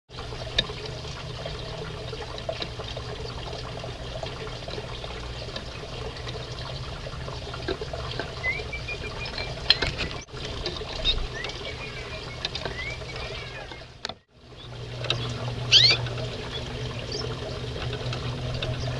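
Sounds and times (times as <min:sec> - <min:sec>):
rising whistled bird calls: 0:08.4 - 0:09.9, 0:11.0 - 0:13.8, 0:15.7 - 0:17.3
finches chirping: 0:11.0 - 0:13.7, 0:14.6 - 0:17.3.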